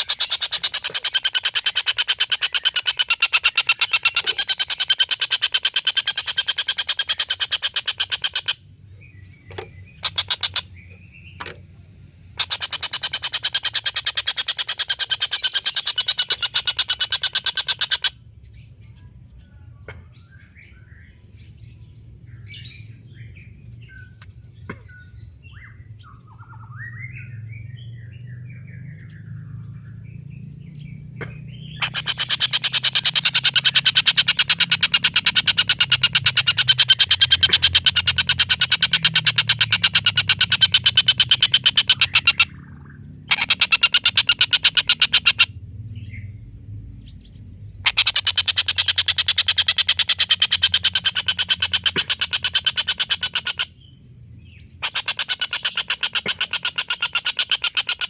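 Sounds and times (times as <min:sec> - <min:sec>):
kingfisher rattling call: 0:00.0 - 0:08.6, 0:09.5 - 0:10.7, 0:12.4 - 0:18.1, 0:31.8 - 0:45.5, 0:47.8 - 0:53.7, 0:54.8 - 0:58.0
soft bird chirps: 0:00.0 - 0:58.0.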